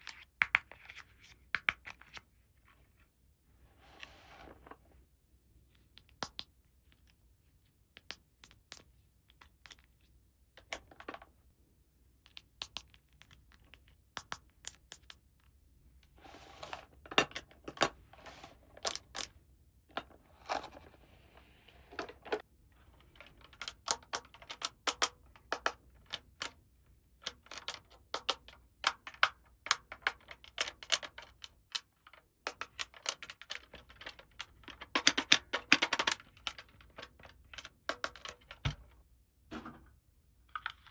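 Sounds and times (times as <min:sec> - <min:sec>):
plastic toy pieces clicking: 0:23.1 - 0:26.5, 0:27.2 - 0:38.6.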